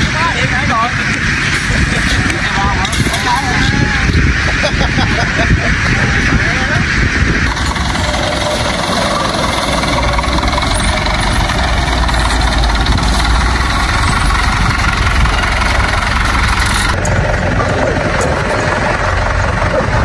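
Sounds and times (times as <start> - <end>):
engine running: 0.0 - 20.0
low drone: 0.0 - 20.0.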